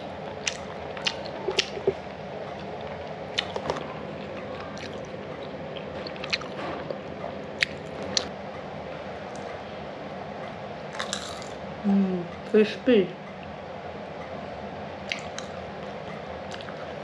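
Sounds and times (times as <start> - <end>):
person chewing crispy food: 0.1 - 8.3, 11.0 - 11.6, 16.5 - 17.0.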